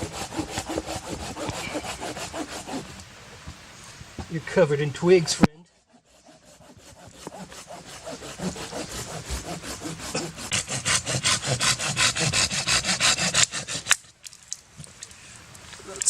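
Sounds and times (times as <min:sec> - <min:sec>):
hand saw cutting wood: 0:00.0 - 0:03.0, 0:05.8 - 0:14.0.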